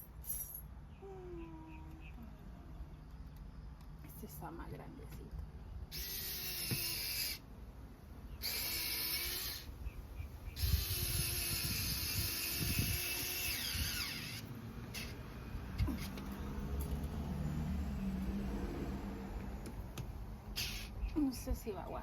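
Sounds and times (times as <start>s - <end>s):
electric drill driving a screw: 5.9s - 7.4s, 8.4s - 9.7s, 10.6s - 15.2s, 20.6s - 21.0s.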